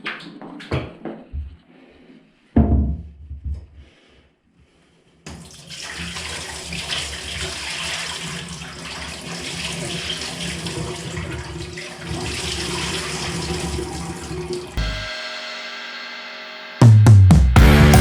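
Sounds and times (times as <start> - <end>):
water running from a tap: 5.3 - 14.8.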